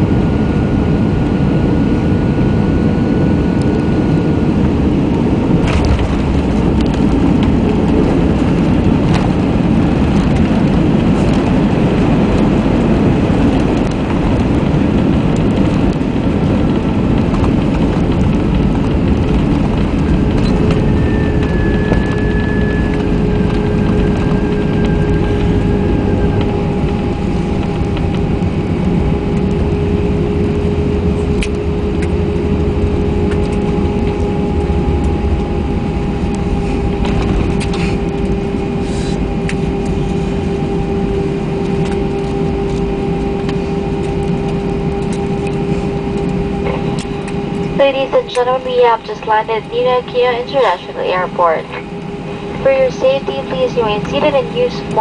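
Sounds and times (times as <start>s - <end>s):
airplane cabin rumble: 0.0s - 55.0s
faint steady hum: 18.1s - 55.0s.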